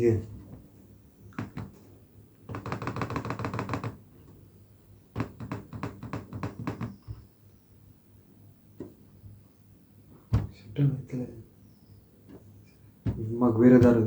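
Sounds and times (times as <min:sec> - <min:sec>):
tapping on laptop keyboard: 0:01.3 - 0:01.9, 0:02.5 - 0:04.0, 0:05.2 - 0:07.2.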